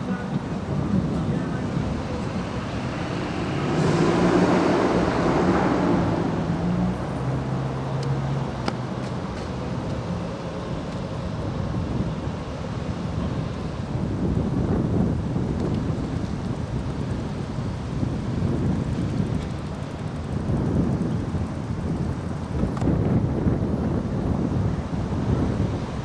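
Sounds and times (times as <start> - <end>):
street noise: 0.0 - 26.0
vehicle driving past: 1.6 - 8.5.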